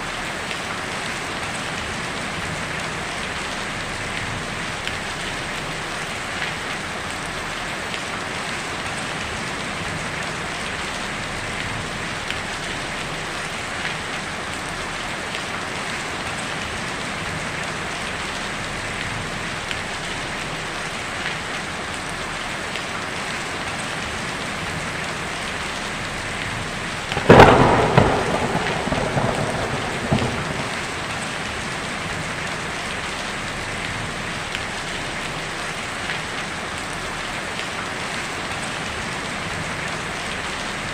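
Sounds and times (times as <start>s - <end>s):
rain on a tin roof: 0.0s - 40.9s
thunderclap rumbling: 27.1s - 32.8s.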